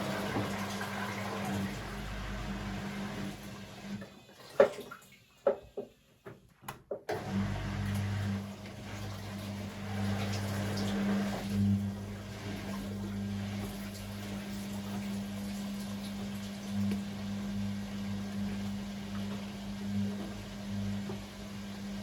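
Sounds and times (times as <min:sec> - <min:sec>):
washing machine motor hum: 0:00.0 - 0:04.6, 0:06.6 - 0:22.0
water sloshing in drum: 0:04.3 - 0:05.9.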